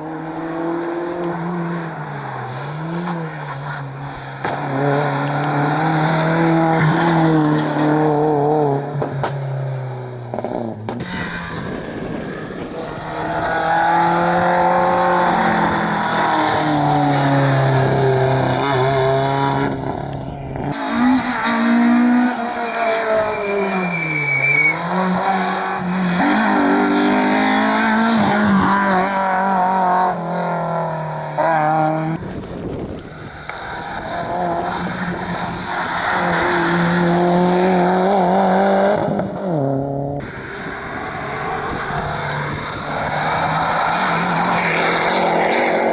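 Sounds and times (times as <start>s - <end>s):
rally car engine at full throttle: 0.0s - 45.9s
tyre squeal: 19.8s - 26.7s.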